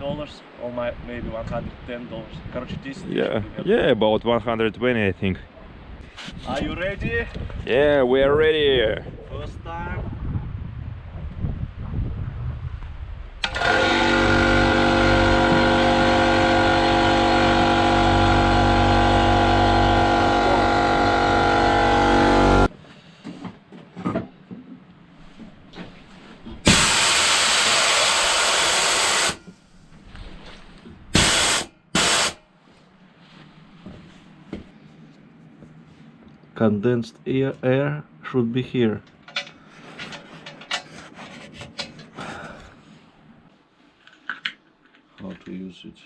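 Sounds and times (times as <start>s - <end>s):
air compressor running: 13.4s - 22.7s, 26.6s - 29.6s, 31.1s - 32.4s
compressed air hissing: 26.7s - 29.6s, 31.2s - 32.4s.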